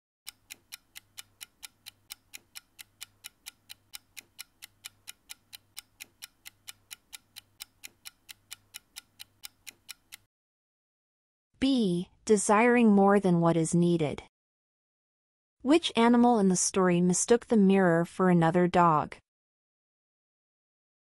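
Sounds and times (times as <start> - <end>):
clock ticking: 0.3 - 10.3.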